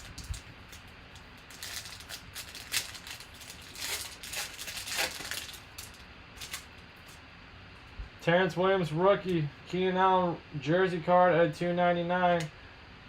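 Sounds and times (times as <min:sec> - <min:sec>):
card pack wrapper crinkling: 0:00.0 - 0:07.2.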